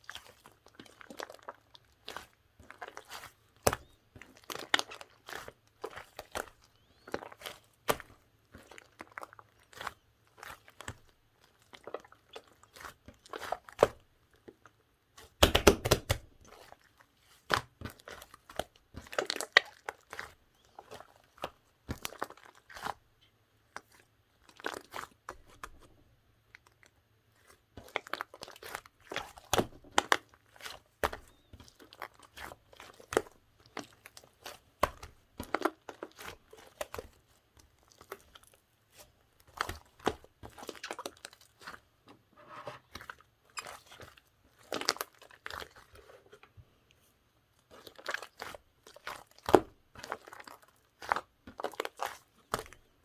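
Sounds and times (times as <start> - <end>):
slime squishing by hand: 0.1 - 26.0, 27.2 - 46.6, 47.6 - 53.0.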